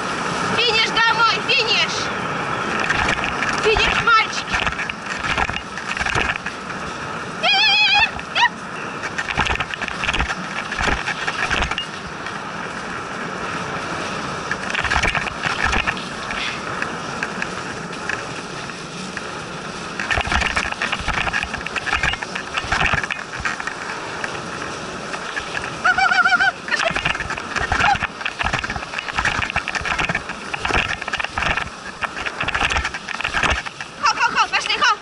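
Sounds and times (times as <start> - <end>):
sled runners hissing over snow: 0.0 - 35.0
sled knocking and rattling: 2.7 - 6.8, 9.0 - 12.4, 14.4 - 35.0.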